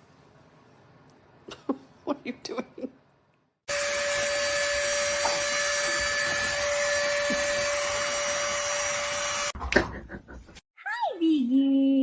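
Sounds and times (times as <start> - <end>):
electric motor whirring: 3.7 - 9.6.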